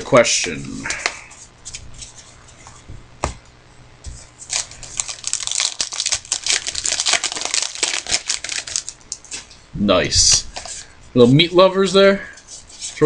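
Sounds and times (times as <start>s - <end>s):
foil wrappers crinkling and clicking: 4.4s - 9.6s.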